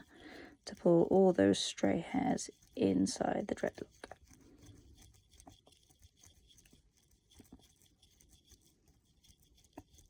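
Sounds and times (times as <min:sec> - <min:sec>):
crochet hook scratching hair: 0:00.0 - 0:10.0.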